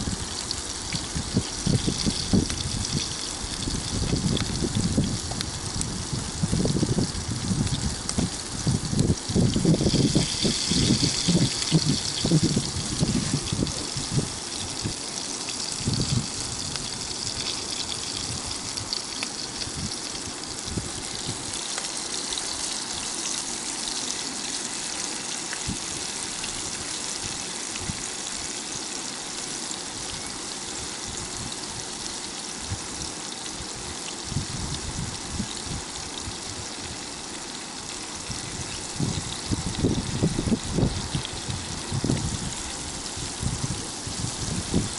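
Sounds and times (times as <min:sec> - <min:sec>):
fish frying in oil: 0:00.0 - 0:44.9.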